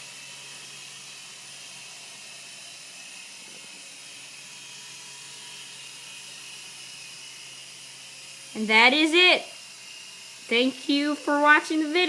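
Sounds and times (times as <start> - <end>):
rc helicopter rotors running: 0.0 - 12.0.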